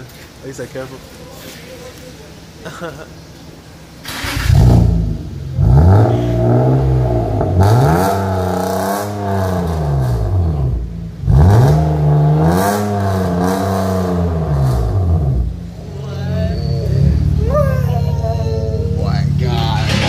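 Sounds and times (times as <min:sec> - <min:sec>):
car engine revving: 0:04.0 - 0:20.0.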